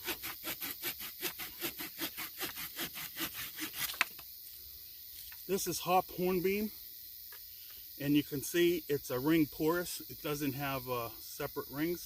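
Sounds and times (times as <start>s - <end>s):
hand saw cutting wood: 0.0s - 4.1s.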